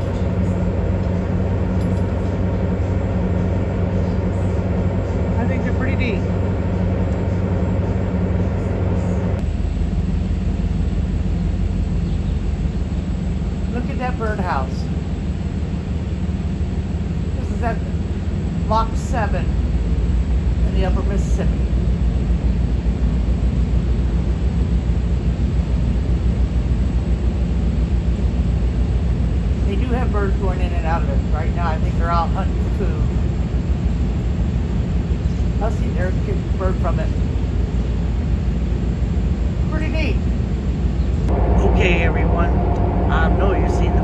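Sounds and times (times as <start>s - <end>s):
low rumble: 0.0s - 22.2s, 36.9s - 44.0s
diesel engines humming: 0.0s - 44.0s
wind buffeting microphone: 40.4s - 44.0s.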